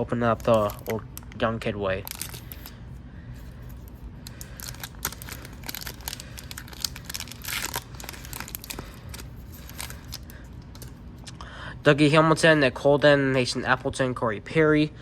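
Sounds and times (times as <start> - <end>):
foil wrapper crinkling and tearing: 0.2 - 2.8, 3.6 - 11.0.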